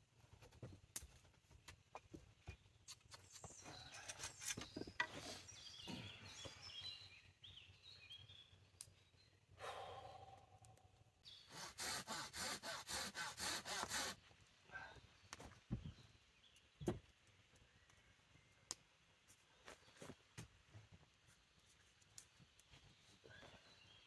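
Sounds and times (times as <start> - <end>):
quick even strokes on wood: 11.5 - 14.2.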